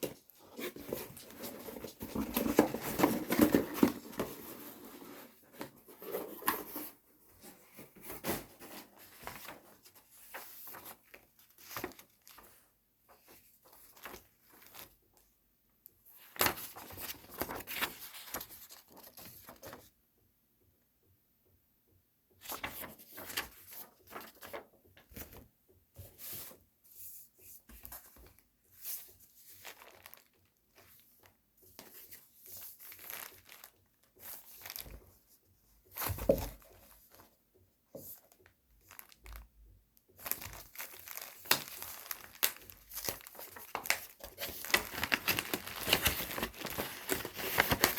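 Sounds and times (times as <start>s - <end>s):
packaging tearing and crinkling: 40.3s - 47.9s.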